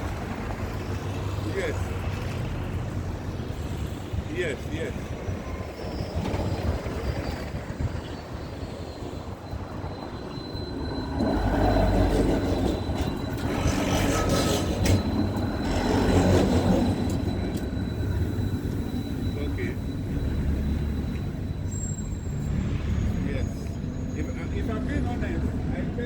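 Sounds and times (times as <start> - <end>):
thin high whine: 4.7 - 25.4
large vehicle rumbling past: 9.7 - 26.0.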